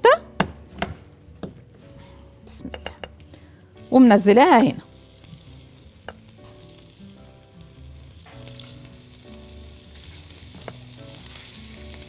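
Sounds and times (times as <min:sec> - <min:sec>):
meat sizzling in a frying pan: 0:03.8 - 0:12.0.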